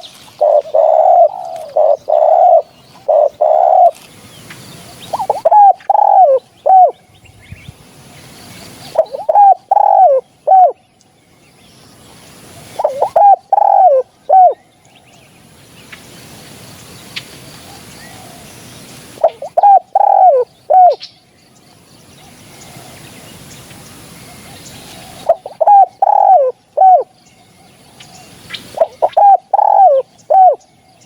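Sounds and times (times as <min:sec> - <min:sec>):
dove cooing: 0:00.0 - 0:04.0, 0:04.9 - 0:07.0, 0:08.9 - 0:10.8, 0:12.6 - 0:14.6, 0:19.2 - 0:21.0, 0:24.3 - 0:27.1, 0:28.1 - 0:30.7
small birds chirping: 0:00.0 - 0:31.0.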